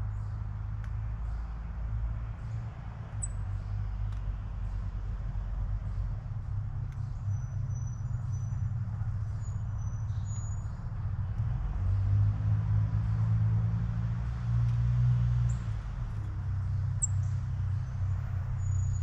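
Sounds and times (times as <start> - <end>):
road traffic rumble: 0.0 - 19.0
faint bird chirps: 7.0 - 8.7, 9.3 - 10.8, 16.9 - 19.0
vehicle passing: 10.9 - 19.0.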